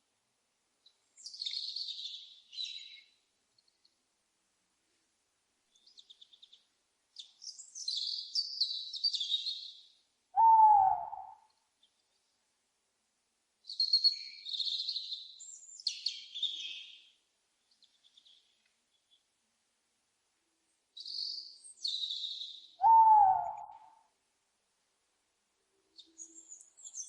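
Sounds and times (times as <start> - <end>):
songbirds chirping and trilling: 0.8 - 4.0, 5.7 - 12.4, 13.6 - 19.4, 21.0 - 23.9, 25.7 - 27.0
owl hooting: 10.4 - 11.5, 22.8 - 24.1.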